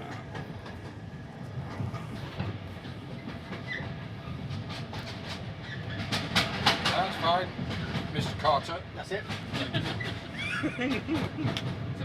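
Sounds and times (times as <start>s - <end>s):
train coach rumbling: 0.0s - 12.0s.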